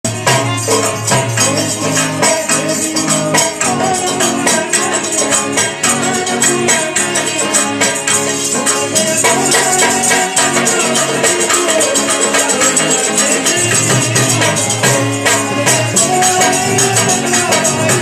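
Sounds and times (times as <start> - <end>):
kettledrum beating: 0.0 - 18.0
jingling rattle percussion: 0.1 - 18.0.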